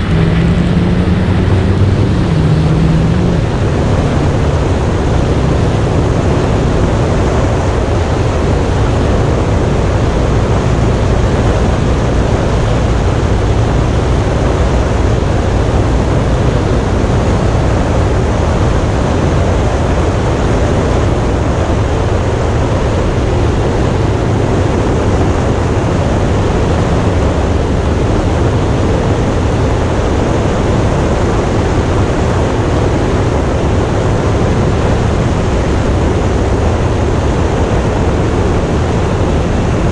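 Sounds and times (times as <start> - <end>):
motorcycle engine hum: 0.0 - 39.9
wind rush over microphone: 0.0 - 39.9.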